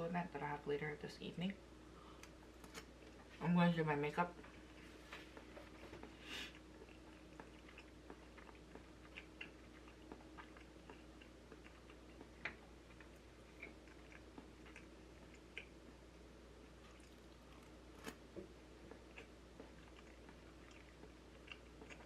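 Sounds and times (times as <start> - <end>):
person chewing: 4.4 - 16.0, 16.6 - 22.0.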